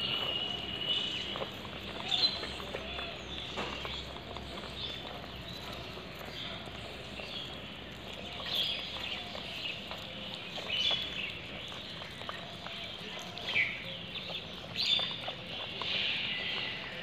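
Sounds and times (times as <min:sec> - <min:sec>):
birds chirping: 0:00.0 - 0:17.0
street ambience: 0:00.0 - 0:17.0.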